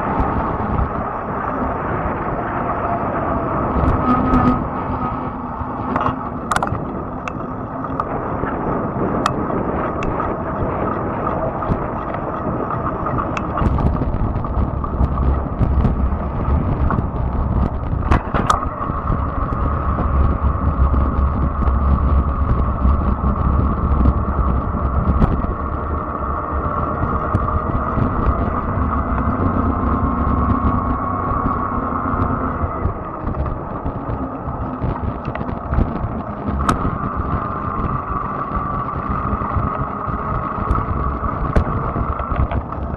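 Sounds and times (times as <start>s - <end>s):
electric bike motor whine: 0.0s - 42.9s
heavy low rumble: 0.0s - 42.9s
tyre and road noise: 0.0s - 42.9s
sharp clicks: 5.8s - 8.1s.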